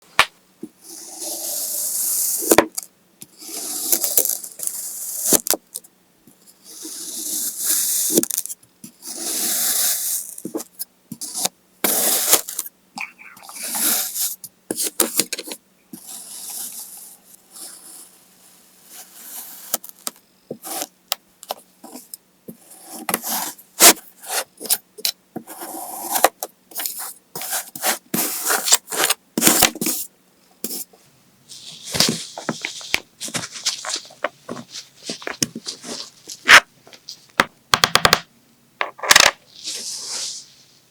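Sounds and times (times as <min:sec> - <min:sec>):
knife cutting kinetic sand: 0:00.8 - 0:05.4, 0:06.7 - 0:08.4, 0:09.0 - 0:10.4, 0:11.2 - 0:12.7, 0:13.4 - 0:15.3, 0:16.0 - 0:18.2, 0:18.8 - 0:19.8, 0:22.6 - 0:24.8, 0:25.4 - 0:30.1, 0:30.7 - 0:30.9.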